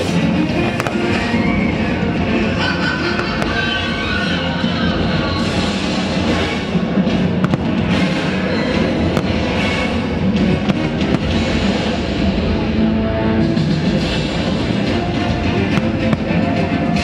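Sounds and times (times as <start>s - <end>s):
music with loud drums: 0.0s - 17.0s
firework bangs: 0.7s - 2.1s, 3.1s - 4.0s, 7.2s - 12.5s, 15.3s - 17.0s.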